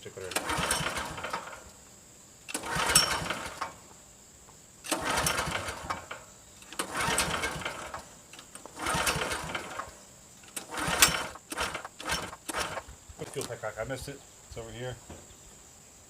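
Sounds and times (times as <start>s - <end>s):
recoil starter pulled: 0.2s - 1.8s, 2.5s - 3.8s, 4.9s - 13.5s
generator engine turning over: 0.3s - 1.7s, 2.5s - 3.8s, 4.9s - 12.9s.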